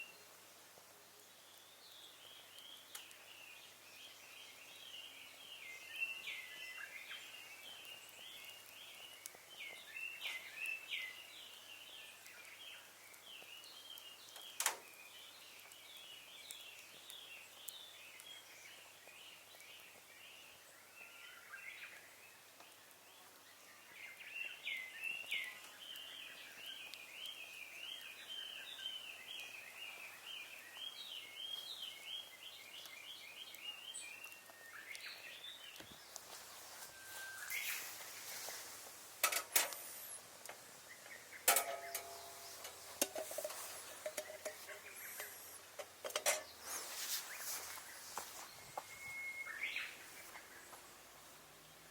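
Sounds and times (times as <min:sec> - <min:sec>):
wood fire popping and snapping: 0:00.2 - 0:49.2
birds chirping: 0:01.2 - 0:51.9.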